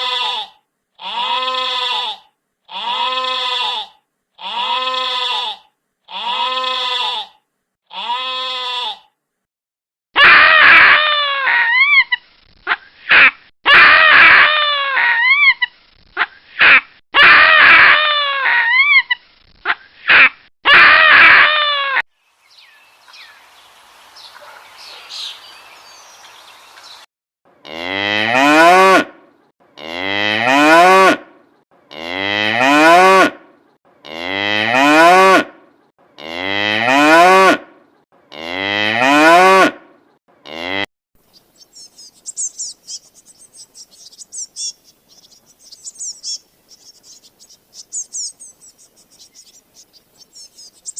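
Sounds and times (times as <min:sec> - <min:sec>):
cow mooing: 0:27.6 - 0:29.2, 0:29.8 - 0:31.2, 0:31.9 - 0:33.4, 0:34.0 - 0:35.6, 0:36.2 - 0:37.7, 0:38.3 - 0:40.9.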